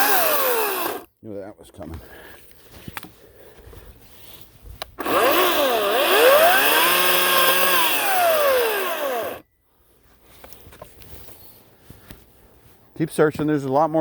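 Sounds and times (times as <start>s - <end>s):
electric chainsaw motor whine: 0.0s - 1.1s, 5.0s - 9.4s.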